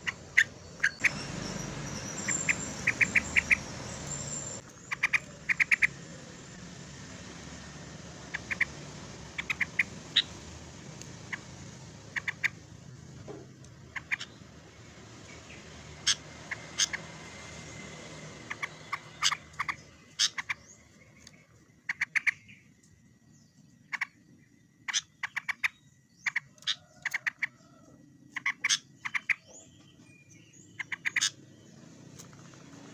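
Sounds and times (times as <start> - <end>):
bulbul calling: 0.0 - 6.6, 8.1 - 12.8, 13.6 - 14.5, 15.2 - 17.1, 18.4 - 22.7, 24.8 - 27.6, 28.3 - 31.4.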